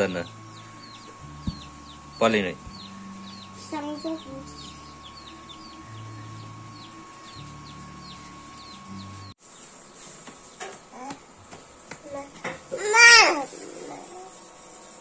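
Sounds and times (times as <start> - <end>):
low hum: 0.0 - 9.4
birds chirping: 0.0 - 15.0.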